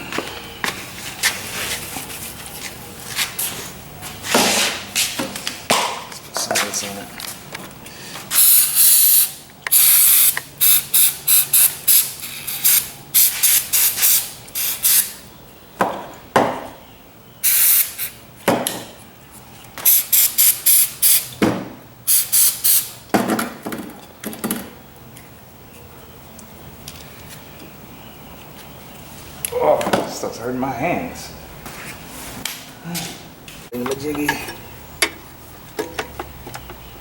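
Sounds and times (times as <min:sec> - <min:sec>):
aerosol spray hissing bursts: 0:08.3 - 0:15.1, 0:17.4 - 0:18.1.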